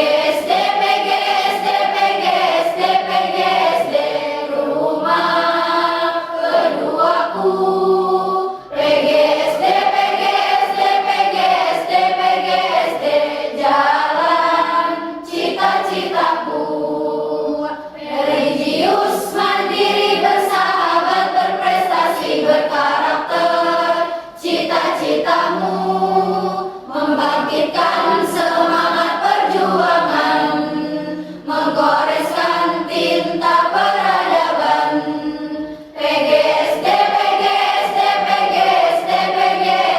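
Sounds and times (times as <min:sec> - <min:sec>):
choir singing: 0:00.0 - 0:39.9
singers breathing: 0:08.4 - 0:08.8, 0:24.0 - 0:24.4, 0:35.6 - 0:36.0.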